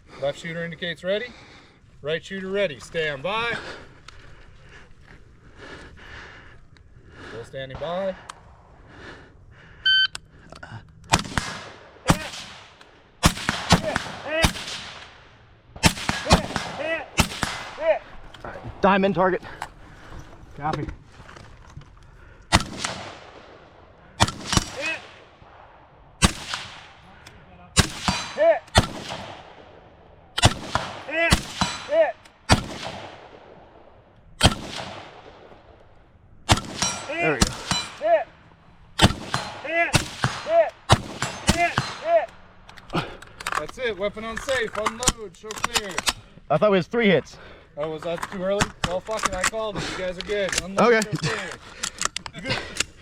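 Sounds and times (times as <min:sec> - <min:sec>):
shot timer beep: 0:09.9 - 0:10.2
rifle shots with echo: 0:11.1 - 0:18.8, 0:22.5 - 0:38.2, 0:39.0 - 0:42.6.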